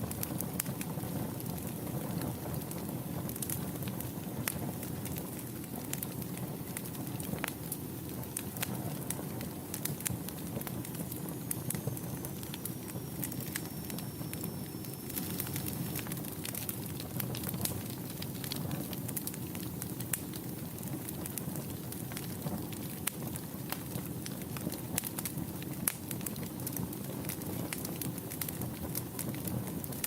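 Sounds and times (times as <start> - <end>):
fire crackling and popping: 0.0 - 30.0
fire flames rumbling: 0.0 - 30.0
faint high whistle: 11.3 - 16.1.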